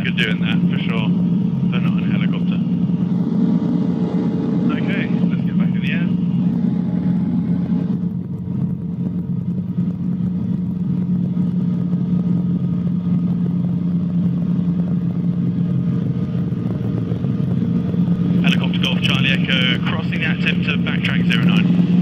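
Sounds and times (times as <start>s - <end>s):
helicopter engine and rotors: 0.0s - 22.0s.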